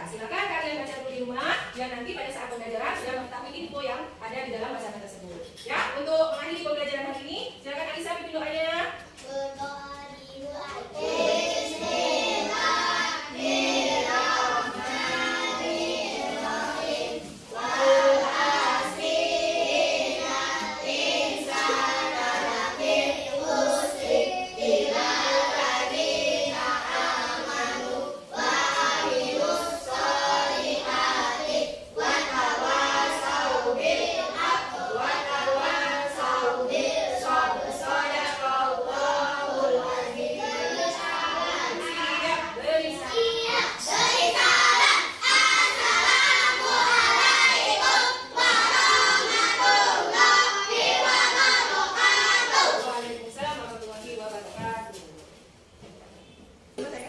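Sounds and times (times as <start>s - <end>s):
children chanting in unison: 10.1s - 53.1s.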